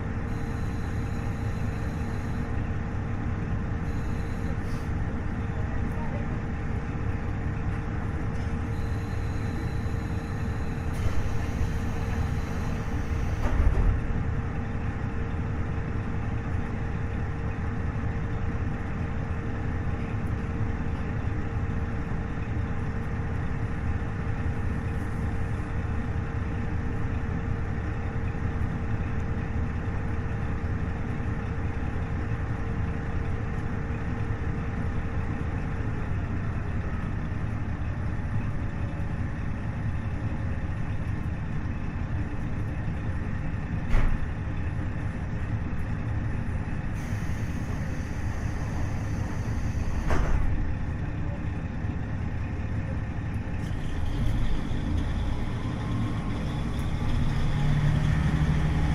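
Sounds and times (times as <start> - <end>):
diesel engine humming: 0.0 - 58.9
wheels rumbling on rails: 0.0 - 58.9
thump: 43.9 - 44.2, 50.0 - 50.5.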